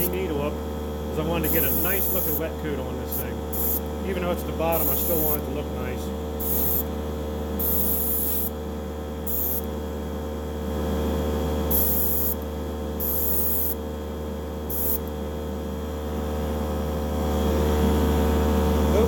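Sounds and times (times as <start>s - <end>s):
steady low hum: 0.0s - 19.0s
airbrush spraying hiss: 1.5s - 2.4s, 3.6s - 3.8s, 6.4s - 6.8s, 7.6s - 8.5s, 9.3s - 9.7s, 11.7s - 12.4s, 13.0s - 13.8s, 14.7s - 15.0s.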